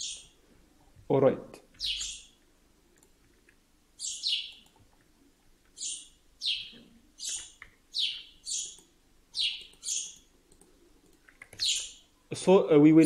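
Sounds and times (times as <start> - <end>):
bird chirping: 0.0 - 0.4, 1.8 - 2.4, 4.0 - 4.9, 5.7 - 10.3, 11.5 - 12.2.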